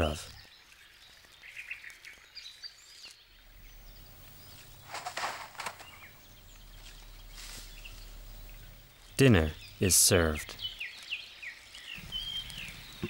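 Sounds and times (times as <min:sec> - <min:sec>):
bush ambience: 0:00.0 - 0:13.0
faint bird chirps: 0:00.0 - 0:13.0
carcass dragged through branches: 0:04.4 - 0:08.5.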